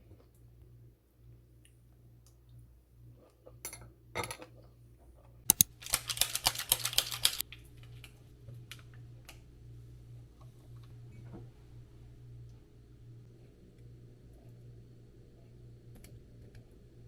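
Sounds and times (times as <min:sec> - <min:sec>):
keyboard clicks: 0:05.5 - 0:07.4.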